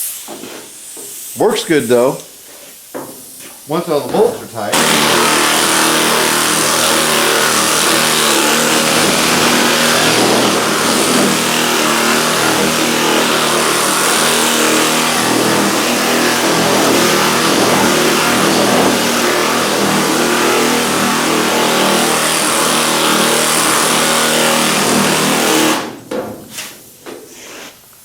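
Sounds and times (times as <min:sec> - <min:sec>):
air file sander hissing and buzzing: 0:04.7 - 0:26.0.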